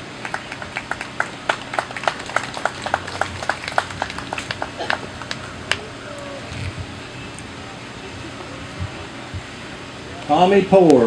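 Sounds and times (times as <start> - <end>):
small crowd clapping: 0.0 - 6.3.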